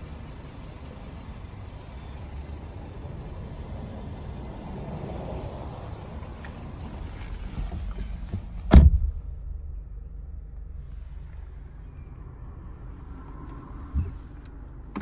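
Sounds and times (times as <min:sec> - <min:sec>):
car engine idling: 0:00.0 - 0:15.0
loud thump: 0:08.6 - 0:09.5.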